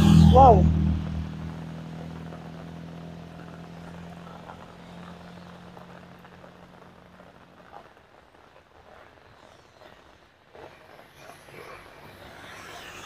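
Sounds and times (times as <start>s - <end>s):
passing vehicle engine hum: 0.0s - 7.6s, 11.0s - 13.0s
heavy rain on wet road: 0.0s - 13.0s.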